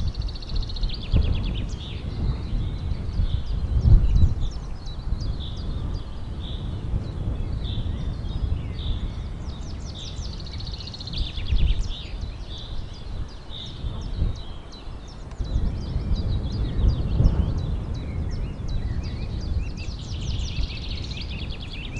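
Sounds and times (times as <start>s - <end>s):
birds chirping and calling: 0.0s - 21.9s.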